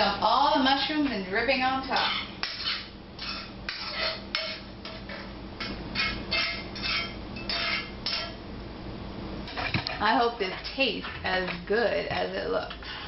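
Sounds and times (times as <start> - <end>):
metal utensil scraping a skillet: 1.9 - 8.4, 9.5 - 13.0.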